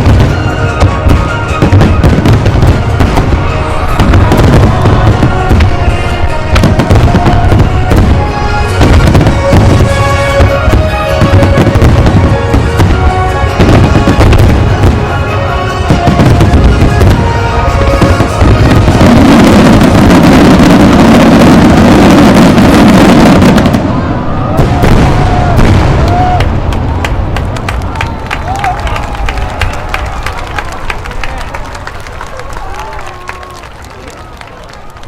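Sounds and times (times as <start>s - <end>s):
music: 0.0s - 26.4s
fireworks bursting: 0.0s - 28.6s.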